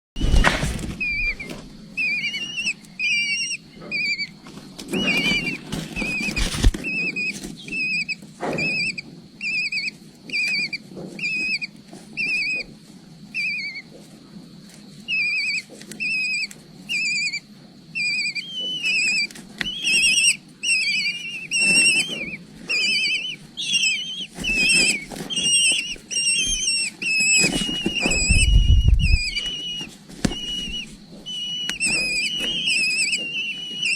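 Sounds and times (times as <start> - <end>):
eagle chicks whistled chirps: 0.2 - 14.0, 14.8 - 33.9
low thumps: 28.0 - 29.5.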